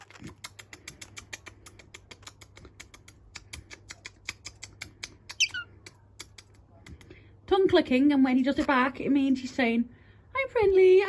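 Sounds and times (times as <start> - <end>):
cockatiel tongue clicking: 0.0 - 7.2.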